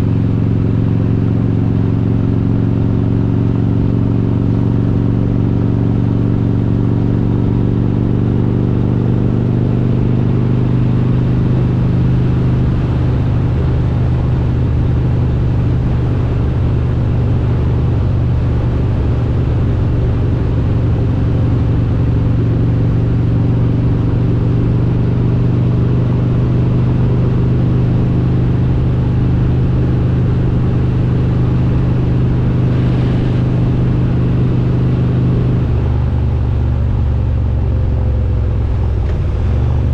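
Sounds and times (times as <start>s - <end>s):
motorcycle engine rumbling: 10.9s - 39.9s.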